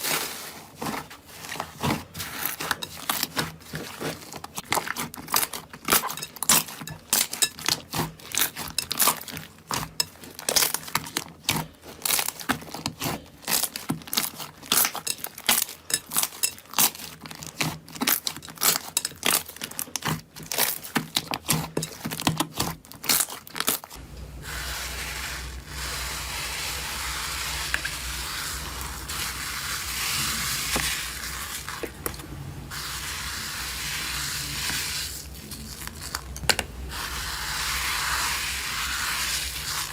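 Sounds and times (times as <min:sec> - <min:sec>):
slime crackling and popping: 0:04.4 - 0:24.0.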